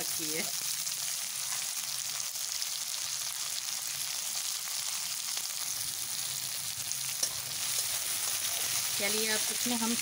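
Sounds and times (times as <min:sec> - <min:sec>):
onions sizzling in hot oil: 0:00.0 - 0:10.0
steel spatula ticking: 0:07.0 - 0:10.0.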